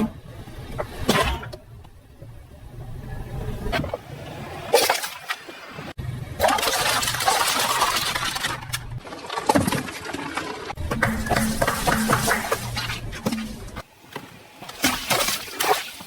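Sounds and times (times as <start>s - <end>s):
tyres crushing objects: 6.4s - 13.9s.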